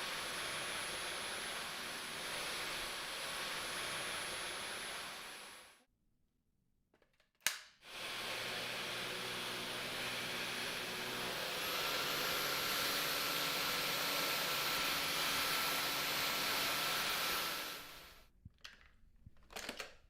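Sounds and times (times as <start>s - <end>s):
vacuum cleaner whirring: 0.0s - 5.8s, 7.8s - 18.3s
clicks: 6.9s - 7.8s.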